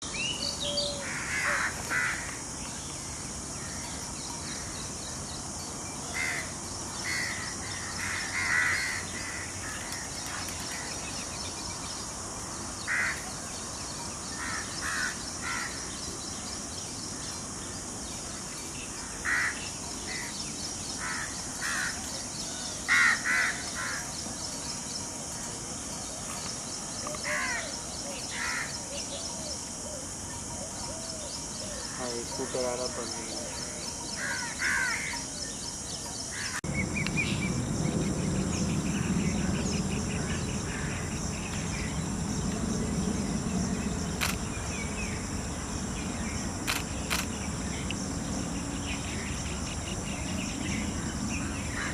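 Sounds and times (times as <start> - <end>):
steady high hiss: 0.0 - 51.9
birds calling: 6.0 - 12.1, 36.2 - 51.9.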